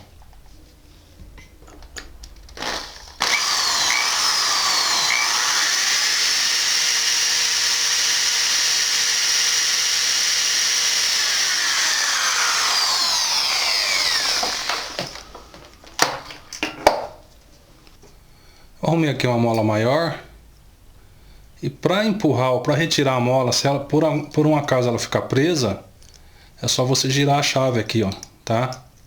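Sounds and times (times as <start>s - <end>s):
power drill whining through metal: 2.5s - 16.5s.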